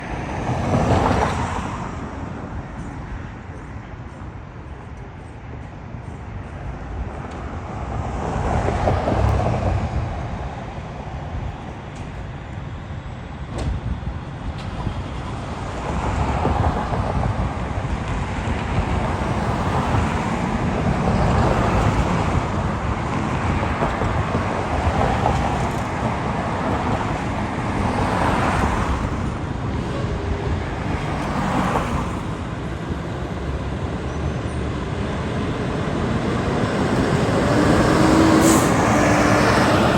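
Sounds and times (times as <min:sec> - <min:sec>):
vehicles passing close by: 0:06.9 - 0:39.9.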